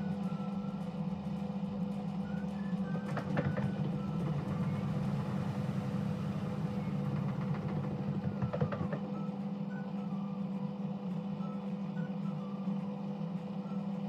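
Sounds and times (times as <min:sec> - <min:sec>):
washing machine motor hum: 0:03.7 - 0:09.0.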